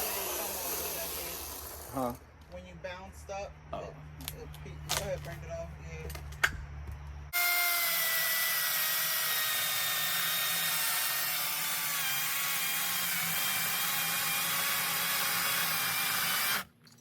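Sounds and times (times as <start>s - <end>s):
chainsaw cutting into log: 0.0s - 2.1s, 7.4s - 16.7s.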